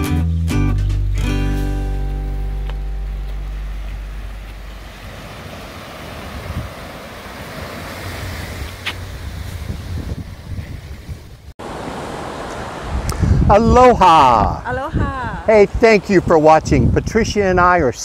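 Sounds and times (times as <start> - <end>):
acoustic guitar chord: 0.0 - 4.5
surf washing on beach: 3.3 - 17.0
wind on microphone: 3.3 - 18.0.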